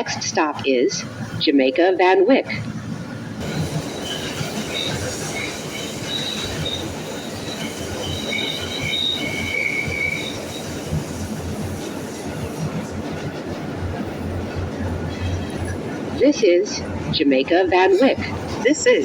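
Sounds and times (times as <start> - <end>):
train wheels rumbling on rail: 0.0 - 19.0
high-pitched wheel squeal: 3.5 - 11.0.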